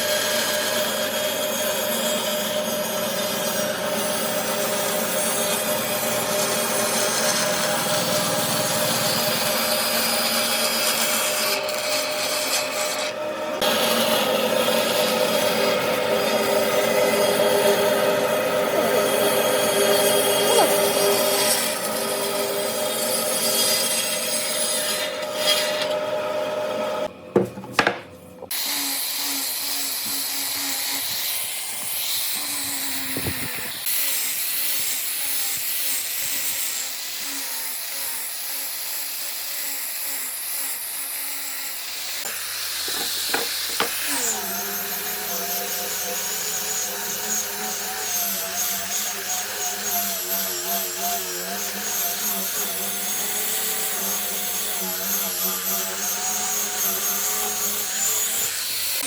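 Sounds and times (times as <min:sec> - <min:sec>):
sawing wood: 0:00.0 - 0:26.8, 0:28.5 - 0:59.0
motor humming: 0:28.2 - 0:59.0.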